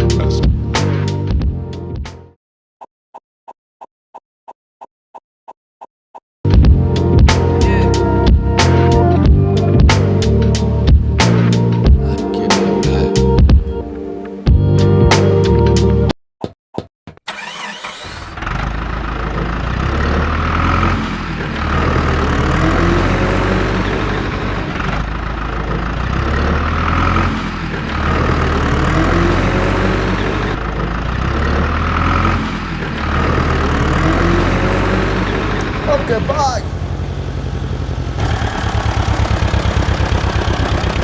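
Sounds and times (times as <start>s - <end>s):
engine running: 17.3s - 41.0s.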